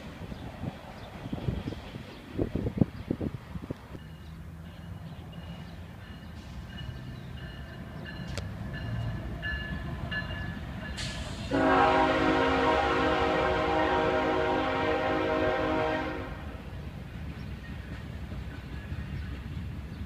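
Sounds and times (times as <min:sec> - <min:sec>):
train rumble: 0:00.0 - 0:20.0
locomotive air horn: 0:11.0 - 0:16.6.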